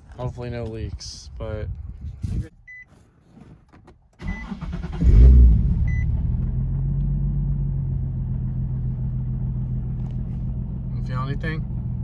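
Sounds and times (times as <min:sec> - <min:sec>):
car engine starting and idling: 0:04.2 - 0:12.0
short electronic beeps: 0:05.9 - 0:06.1.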